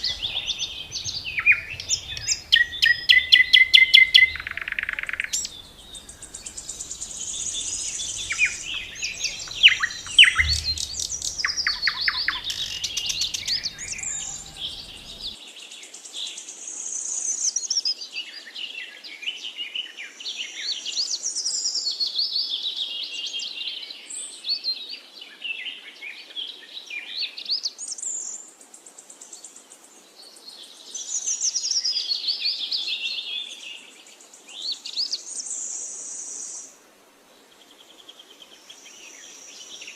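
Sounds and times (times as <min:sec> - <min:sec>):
songbirds singing and chirping: 0:00.0 - 0:15.4.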